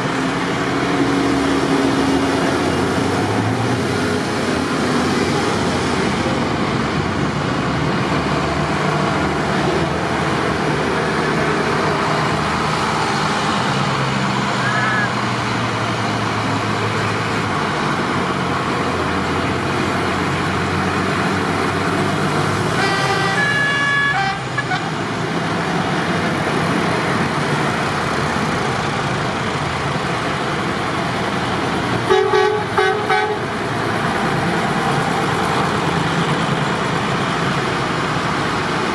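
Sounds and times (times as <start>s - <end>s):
tractor engines running: 0.0s - 38.9s
vehicle horn tooting: 22.8s - 24.9s, 32.1s - 33.4s.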